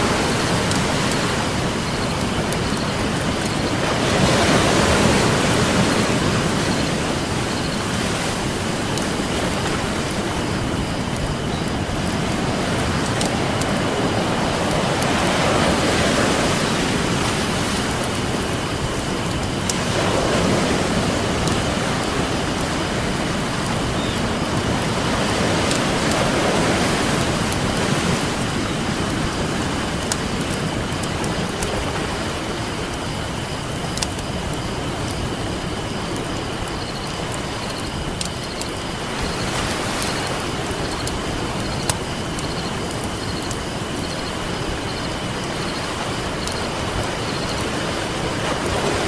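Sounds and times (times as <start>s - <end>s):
ocean waves breaking on beach: 0.0s - 49.0s
campfire crackling and popping: 8.0s - 16.6s, 29.9s - 31.7s, 33.9s - 35.3s.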